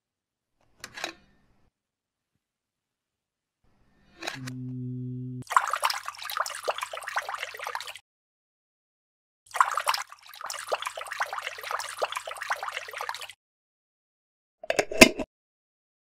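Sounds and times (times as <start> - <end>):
liquid pouring and fizzing: 5.4 - 8.0, 9.5 - 13.4.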